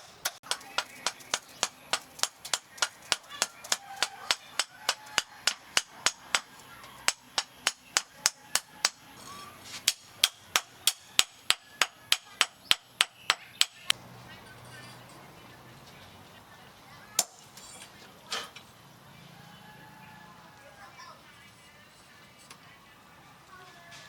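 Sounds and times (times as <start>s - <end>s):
hammer striking metal: 0.0s - 9.0s, 9.8s - 13.9s.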